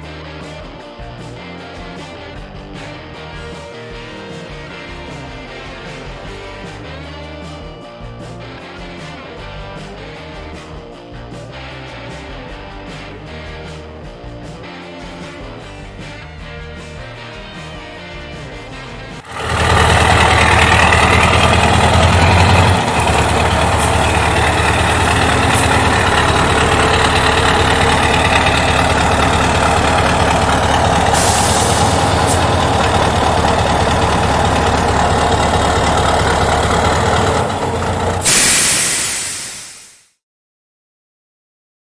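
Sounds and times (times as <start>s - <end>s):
diesel truck engine running: 19.1s - 40.0s
brief hiss: 38.2s - 40.1s.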